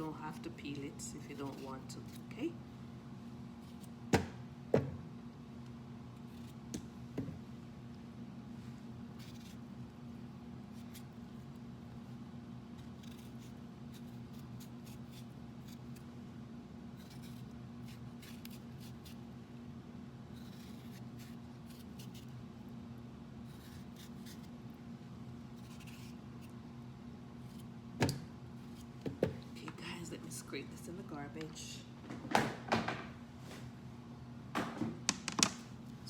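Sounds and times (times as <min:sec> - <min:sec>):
steady low hum: 0:00.0 - 0:36.0
blade scraping vegetable skin: 0:12.8 - 0:16.1, 0:16.9 - 0:19.3, 0:20.3 - 0:22.4, 0:23.4 - 0:24.6, 0:25.5 - 0:26.5.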